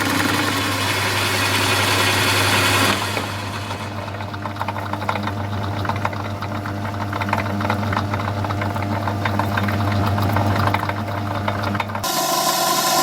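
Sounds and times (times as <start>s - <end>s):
rapid ticking of lathe tool: 0.0s - 5.7s
lathe motor hum: 0.0s - 6.4s, 11.4s - 13.0s
higher-pitched machine sound: 12.0s - 13.0s.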